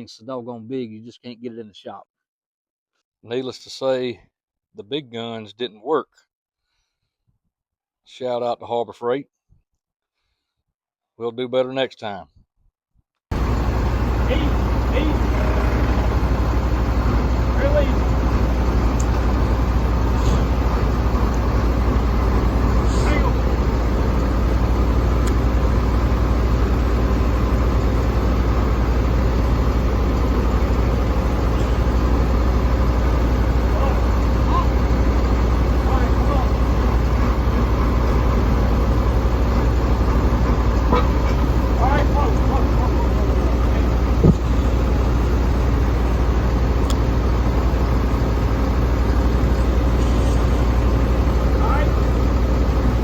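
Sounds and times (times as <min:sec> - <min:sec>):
engine idling: 0:13.3 - 0:53.0.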